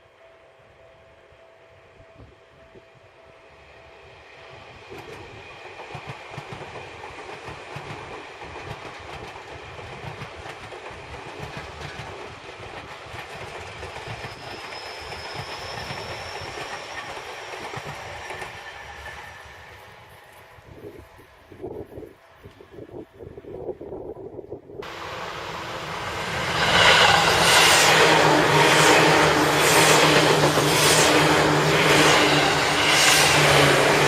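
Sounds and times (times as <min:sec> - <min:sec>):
train wheels clattering: 0:04.9 - 0:19.5.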